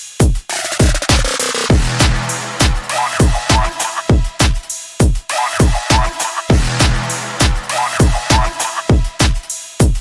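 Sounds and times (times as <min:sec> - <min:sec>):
electronic dance music: 0:00.4 - 0:10.0
deep kick drums: 0:01.7 - 0:10.0.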